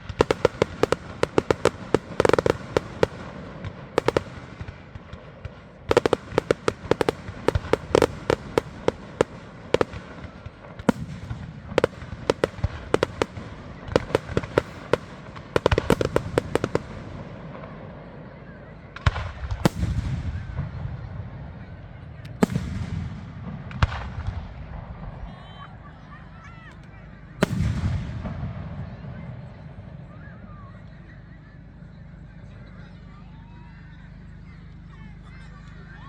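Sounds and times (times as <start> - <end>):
fireworks bangs: 0.0 - 18.1, 18.9 - 25.3, 27.4 - 29.7.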